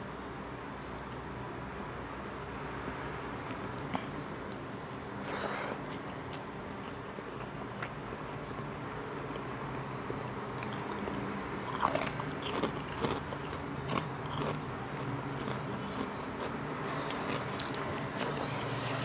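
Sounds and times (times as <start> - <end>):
steady low hum: 0.0 - 19.0
person chewing crunchy food: 10.4 - 19.0.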